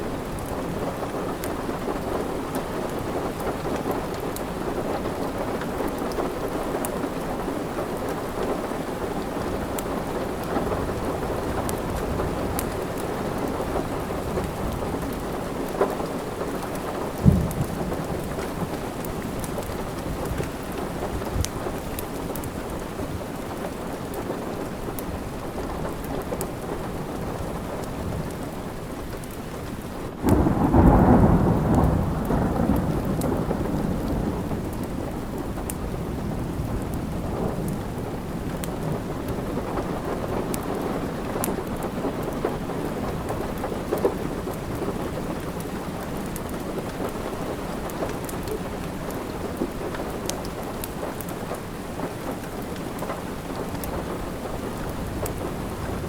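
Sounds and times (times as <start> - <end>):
steady rain: 0.0 - 56.0
wood fire crackling: 0.1 - 31.0, 32.2 - 56.0
thunderclap rumbling: 9.4 - 23.4, 30.2 - 46.6, 53.0 - 56.0.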